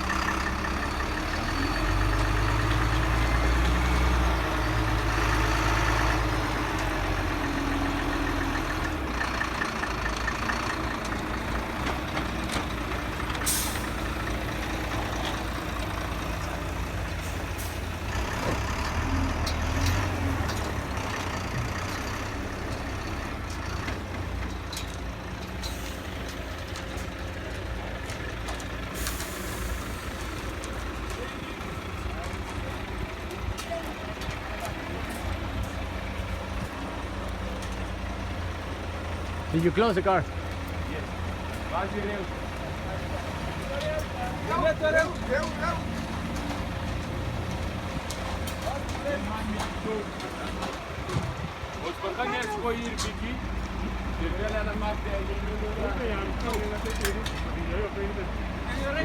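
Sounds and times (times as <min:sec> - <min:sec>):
truck diesel engine running: 0:00.0 - 0:59.0
air brake hisses: 0:13.4 - 0:14.0, 0:29.0 - 0:30.2.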